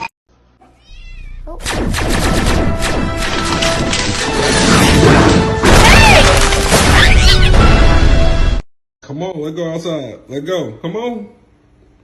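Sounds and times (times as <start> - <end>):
cat meowing: 0.7 - 1.6
music: 2.3 - 8.6.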